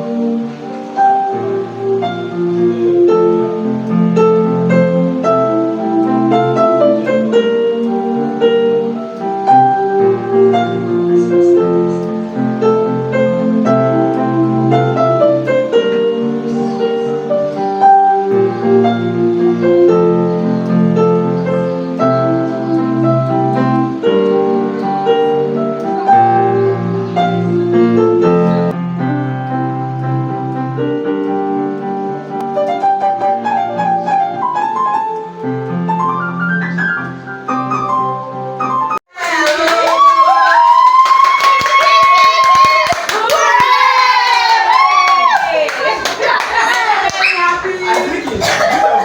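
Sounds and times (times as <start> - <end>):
piano melody over chords: 0.0 - 39.1
people clapping: 39.1 - 49.0
voices: 39.1 - 49.0.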